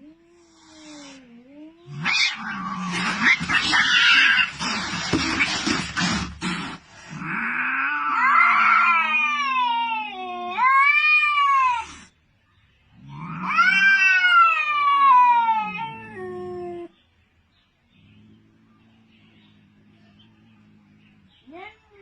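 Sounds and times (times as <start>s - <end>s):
cat yowling: 1.8s - 6.0s, 7.2s - 12.1s, 13.1s - 16.9s.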